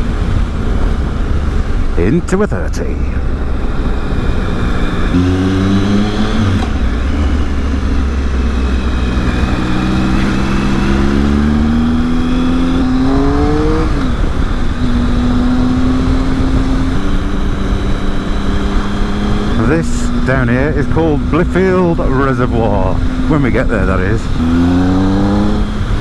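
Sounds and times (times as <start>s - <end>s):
motorcycle engine running: 3.0s - 26.0s
wind noise on microphone: 3.5s - 19.6s.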